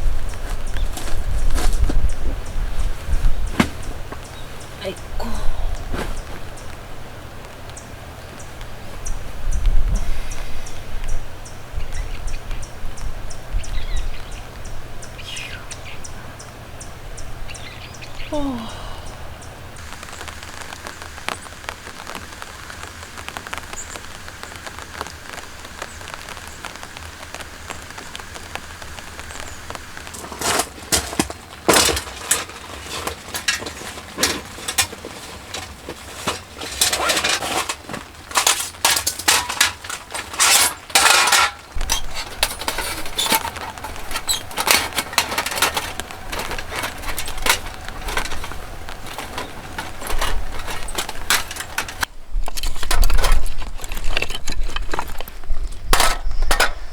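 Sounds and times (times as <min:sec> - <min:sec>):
rain patter: 0:00.0 - 0:56.9
sharp cracks snaps and clinks: 0:27.4 - 0:56.9.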